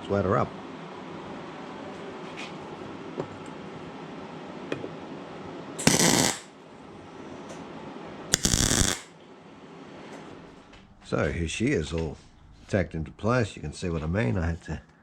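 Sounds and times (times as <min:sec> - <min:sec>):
welding crackle: 0:05.8 - 0:06.5, 0:08.4 - 0:09.1.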